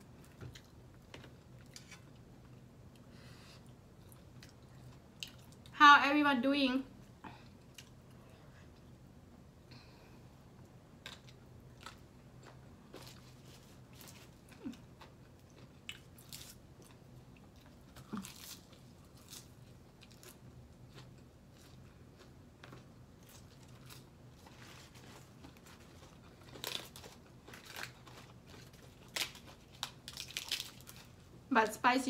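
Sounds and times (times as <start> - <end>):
person chewing and crunching: 3.6 - 5.8, 7.4 - 8.9, 11.0 - 31.3.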